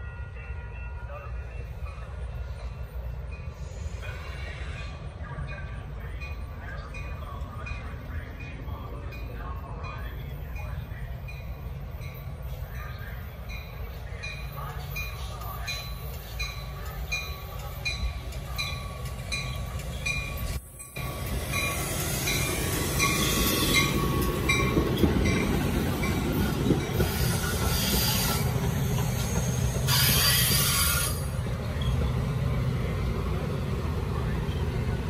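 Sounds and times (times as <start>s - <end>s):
grade-crossing bell ringing: 0.0s - 3.7s, 5.4s - 35.0s
train rumbling past: 0.0s - 35.0s
high wheel squeal: 27.0s - 32.1s.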